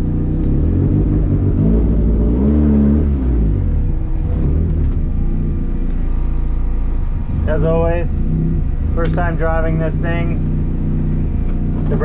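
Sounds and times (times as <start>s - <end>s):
car engine pulling away: 0.0s - 12.0s.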